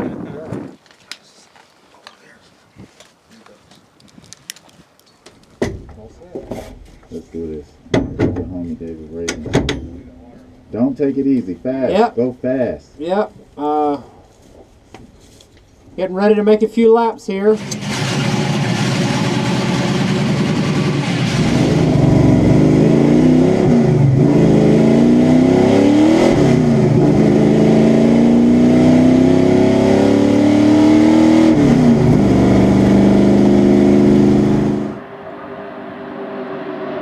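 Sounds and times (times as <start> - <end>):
car engine accelerating hard: 17.6 - 37.0.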